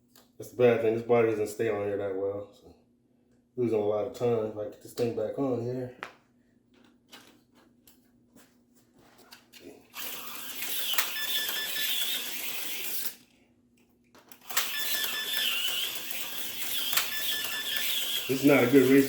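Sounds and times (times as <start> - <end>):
slot car motor whir: 9.9 - 13.2, 14.4 - 19.0.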